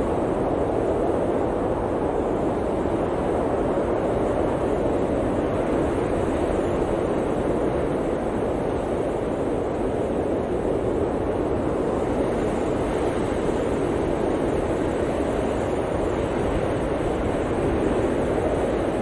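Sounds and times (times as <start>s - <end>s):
blizzard wind blowing hard: 0.0s - 19.0s.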